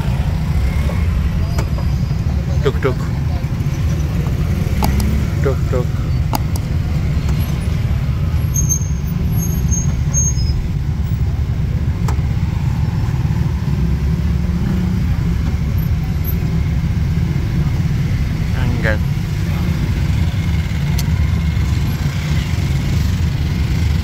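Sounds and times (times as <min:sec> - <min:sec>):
car engine: 0:00.0 - 0:24.0
road noise: 0:00.0 - 0:24.0.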